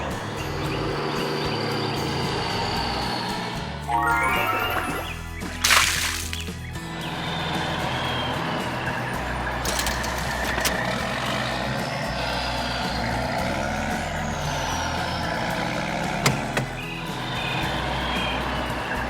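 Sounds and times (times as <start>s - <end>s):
truck engine running: 6.5s - 18.8s.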